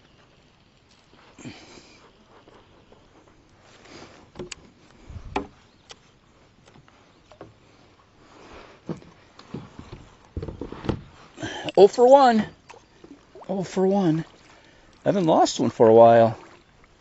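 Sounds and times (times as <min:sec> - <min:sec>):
fishing gear knocks and clicks: 0:04.3 - 0:07.6.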